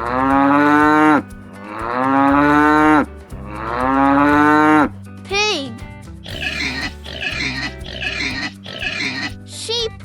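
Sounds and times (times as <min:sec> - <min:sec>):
cow mooing: 0:00.0 - 0:04.9, 0:06.3 - 0:09.2.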